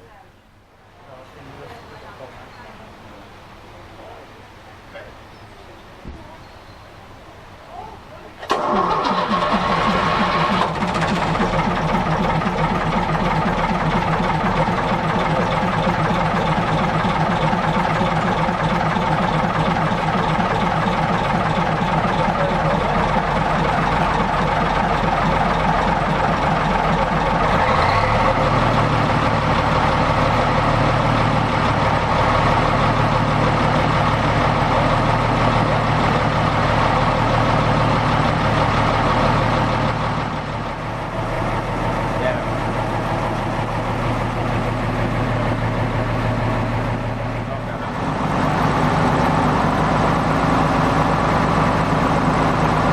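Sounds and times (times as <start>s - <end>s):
heavy diesel engine idling: 8.4s - 52.9s.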